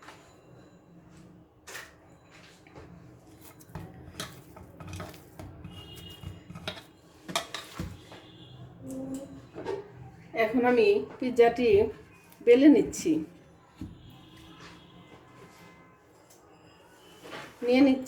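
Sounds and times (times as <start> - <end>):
dishware and utensils clinking: 3.4 - 8.0.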